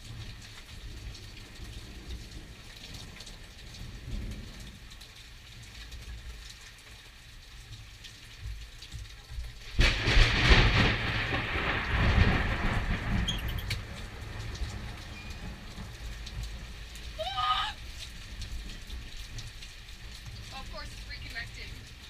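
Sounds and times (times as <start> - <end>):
steady rain: 0.0 - 22.0
thunder rumbling: 9.6 - 22.0.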